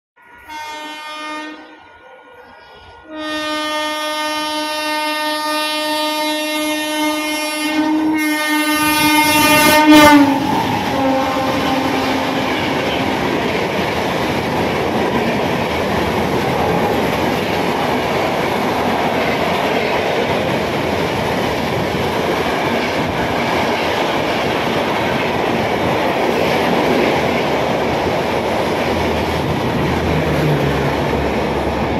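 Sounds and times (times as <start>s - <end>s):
train horn blast: 0.2s - 2.0s, 3.0s - 13.3s
train wheels rushing on rails: 2.5s - 31.9s
locomotive passing: 7.2s - 31.9s.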